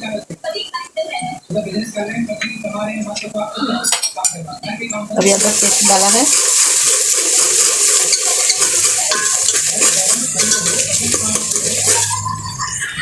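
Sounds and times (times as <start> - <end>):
onions sizzling in hot oil: 5.2 - 12.5
spoon scraping a pan: 5.2 - 12.5.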